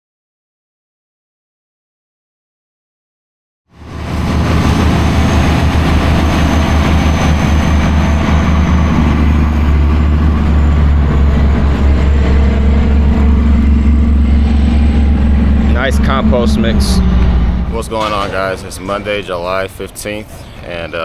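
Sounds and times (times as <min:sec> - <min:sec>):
large vehicle engine running: 0:03.8 - 0:21.0.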